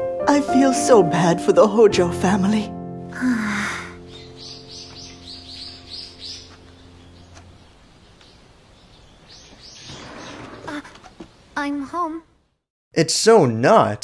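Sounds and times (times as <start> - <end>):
held music chord: 0.0 - 8.0
small bird chirping: 3.9 - 11.7.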